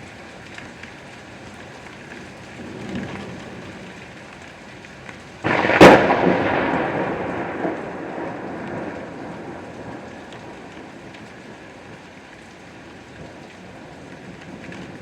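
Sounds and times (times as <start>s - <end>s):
steady rain: 0.0s - 15.0s
thunderclap with rumble: 2.6s - 4.0s, 5.4s - 11.6s.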